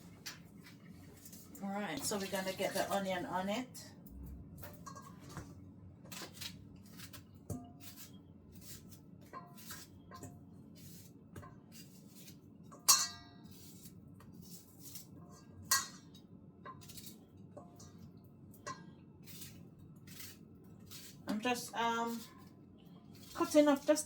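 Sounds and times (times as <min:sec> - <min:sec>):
utensil clinking against dish: 0:04.6 - 0:05.5, 0:12.7 - 0:13.3, 0:15.6 - 0:16.8
knife cutting onion: 0:06.1 - 0:10.0, 0:19.2 - 0:22.4.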